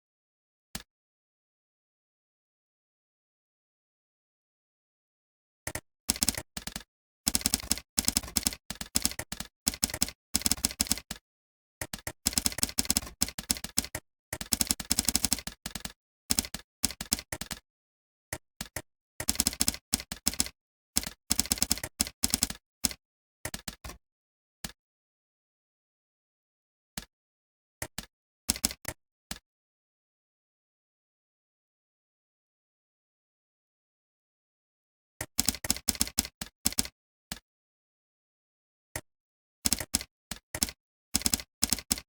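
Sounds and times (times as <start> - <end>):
computer keyboard typing: 5.7 - 11.2, 11.8 - 17.6, 18.6 - 23.8, 27.9 - 28.8, 35.3 - 36.9, 39.7 - 42.0.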